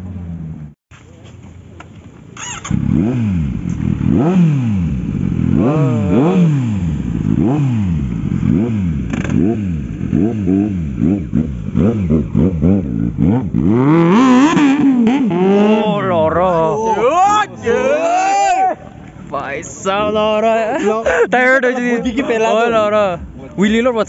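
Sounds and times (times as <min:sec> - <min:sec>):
motorcycle engine revving: 0:02.4 - 0:17.0.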